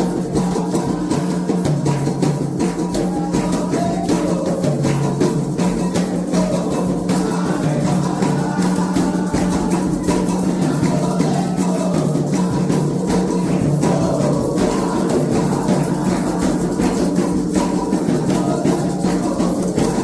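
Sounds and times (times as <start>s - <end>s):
hand drums: 0.0s - 20.0s
shaker rattling: 0.0s - 20.0s
voices singing: 0.0s - 20.0s.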